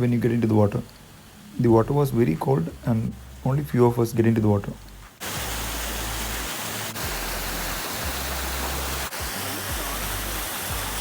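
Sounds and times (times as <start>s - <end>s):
waterfall rushing: 5.2s - 11.0s.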